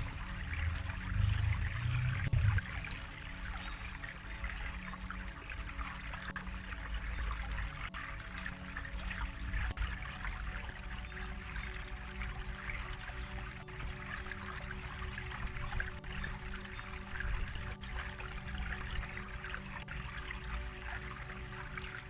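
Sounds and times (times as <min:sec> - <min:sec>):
low rumble: 0:00.0 - 0:03.1
water trickling: 0:00.0 - 0:22.0.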